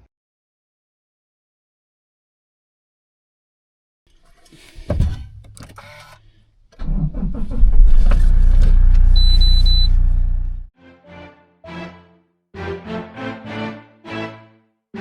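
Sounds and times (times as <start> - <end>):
thump: 4.9 - 5.4
vehicle engine running: 7.6 - 10.7
short high beeps: 9.2 - 9.9.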